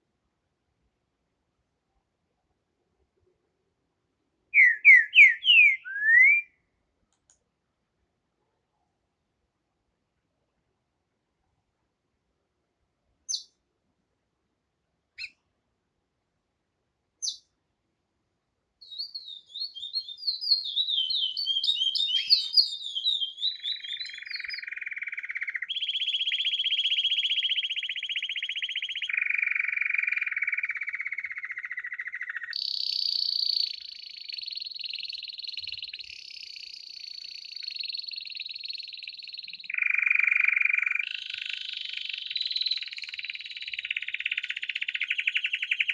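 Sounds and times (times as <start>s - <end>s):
songbird singing: 4.4s - 7.3s, 13.2s - 13.7s, 15.1s - 15.5s, 17.1s - 17.6s, 18.8s - 45.9s.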